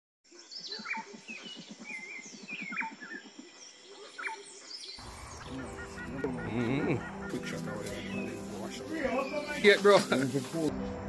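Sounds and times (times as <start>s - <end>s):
downward-sweeping bird call: 5.0s - 10.6s.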